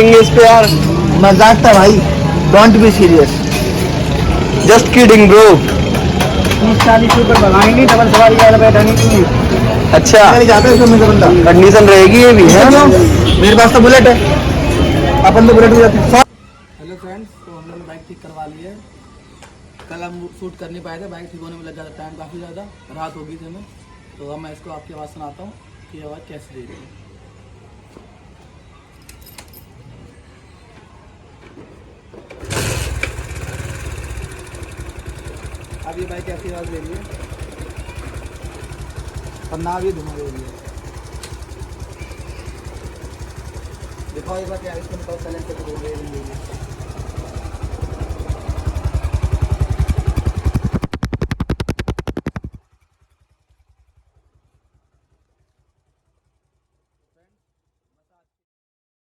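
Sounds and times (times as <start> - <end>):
motorcycle engine idling: 0.1 - 16.2, 32.3 - 57.8.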